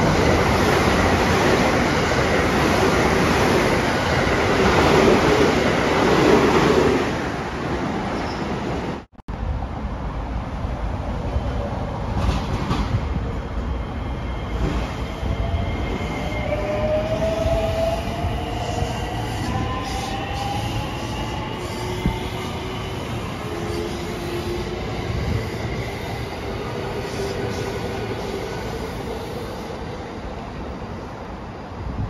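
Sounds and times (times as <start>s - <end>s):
wheels rumbling on rail: 9.3s - 13.7s.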